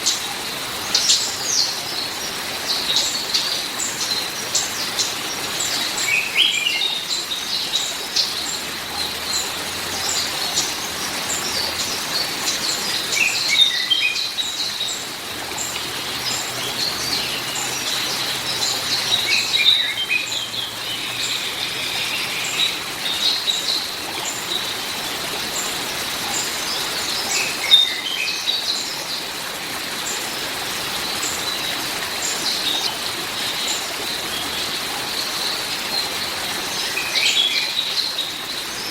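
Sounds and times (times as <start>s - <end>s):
songbirds chirping: 0.0s - 38.9s
rain hissing: 7.7s - 37.4s.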